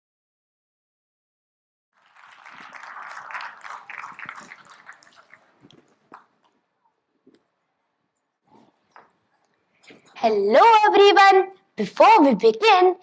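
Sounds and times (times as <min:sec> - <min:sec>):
audience applause: 0:02.0 - 0:06.4.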